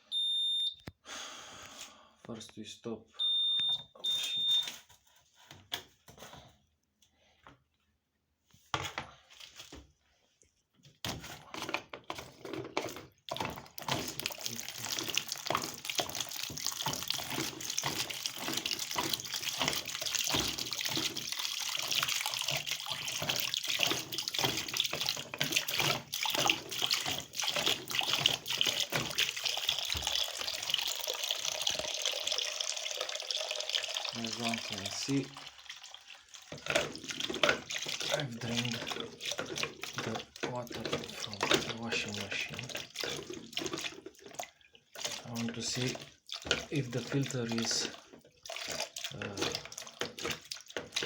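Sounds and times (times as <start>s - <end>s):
water splashing into container: 11.0s - 51.0s.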